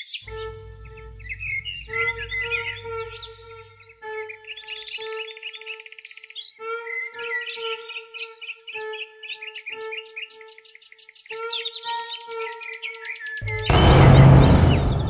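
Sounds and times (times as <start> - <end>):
steady humming tone: 0.3 - 4.0, 13.4 - 15.0.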